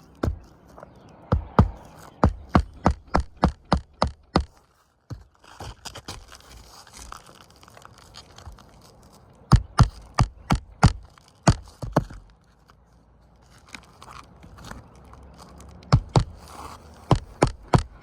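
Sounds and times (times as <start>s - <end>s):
hammer strikes: 1.3s - 4.5s, 9.5s - 12.2s, 15.9s - 16.4s, 17.1s - 18.0s
scraping and rustling on roof: 4.5s - 10.2s, 11.0s - 18.0s.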